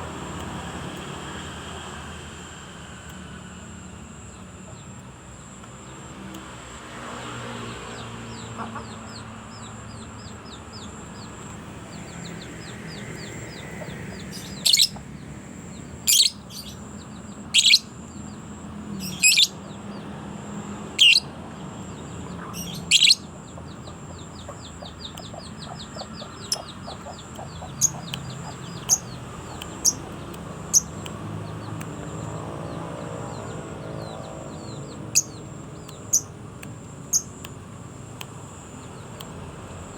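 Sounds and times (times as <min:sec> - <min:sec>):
rapid twittering trills: 0:03.6 - 0:39.9
low background hum: 0:07.6 - 0:39.9
bird calling sharply: 0:12.9 - 0:15.2, 0:16.0 - 0:17.9, 0:19.0 - 0:19.6, 0:21.0 - 0:21.3, 0:22.4 - 0:23.2.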